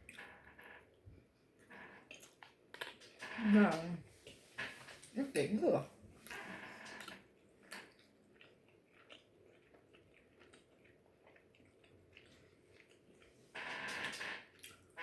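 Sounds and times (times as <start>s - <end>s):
chewing food: 1.6s - 3.3s, 6.2s - 15.0s.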